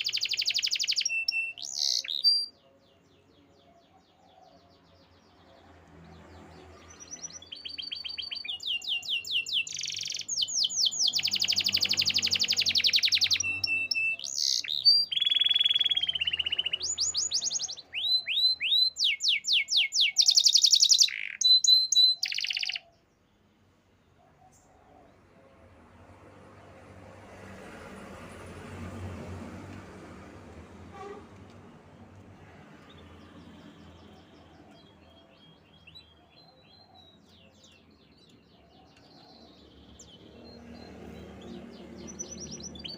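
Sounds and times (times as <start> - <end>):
canary singing trills: 0.0 - 23.3, 31.9 - 42.9.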